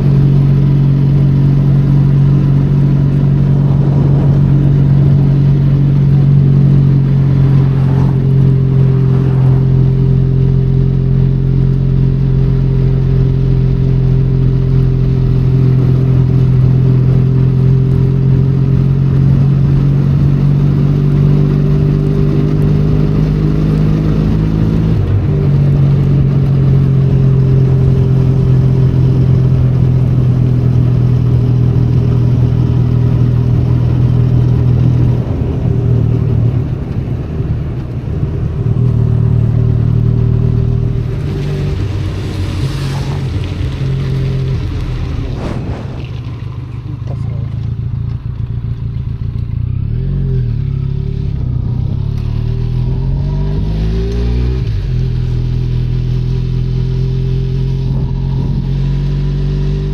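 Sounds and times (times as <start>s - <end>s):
motorcycle engine cruising: 0.0s - 59.9s
wind: 0.0s - 59.9s
rain hiss: 31.8s - 47.6s.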